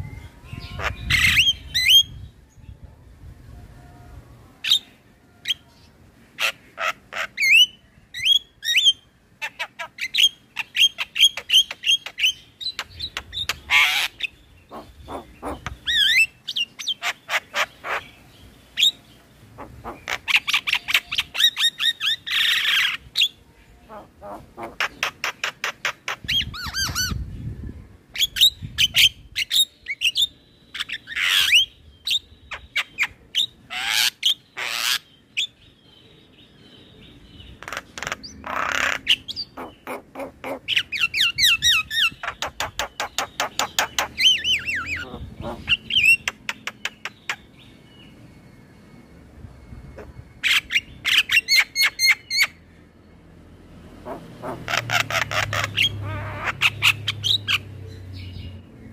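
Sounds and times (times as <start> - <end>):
bird singing varied song: 0.0 - 58.9.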